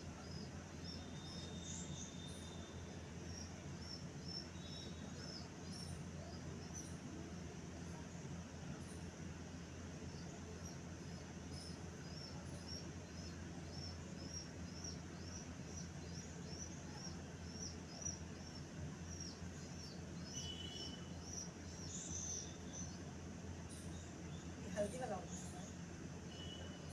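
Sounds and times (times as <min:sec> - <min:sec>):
bird chirping: 0:00.2 - 0:07.0, 0:10.2 - 0:23.0.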